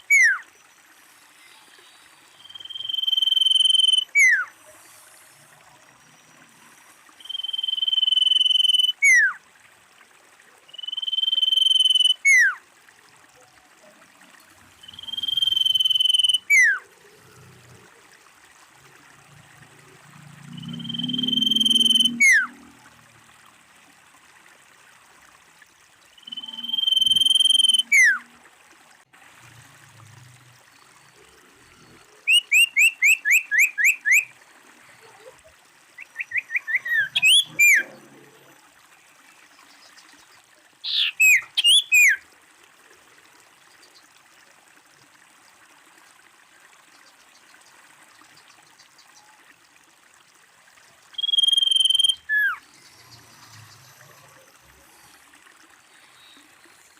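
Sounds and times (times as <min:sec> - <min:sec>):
bird calling with whistles: 0:00.0 - 0:00.5, 0:02.4 - 0:04.5, 0:07.2 - 0:09.4, 0:10.7 - 0:12.6, 0:14.8 - 0:16.8, 0:20.7 - 0:22.5, 0:26.2 - 0:28.2, 0:32.3 - 0:34.3, 0:36.0 - 0:37.9, 0:40.8 - 0:42.2, 0:51.2 - 0:52.6
faint steady hiss: 0:00.0 - 0:32.5.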